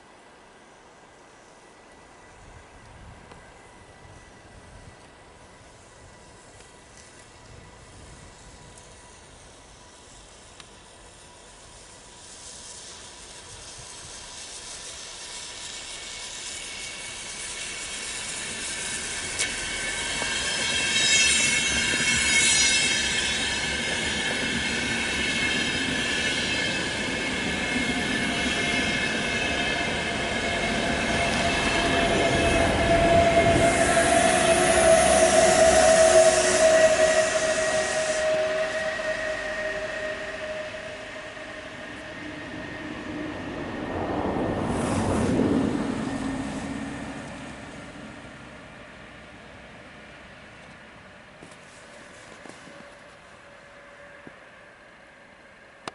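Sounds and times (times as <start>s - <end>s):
train running past: 0.0s - 55.9s
high ringing wheel tones: 15.6s - 29.6s.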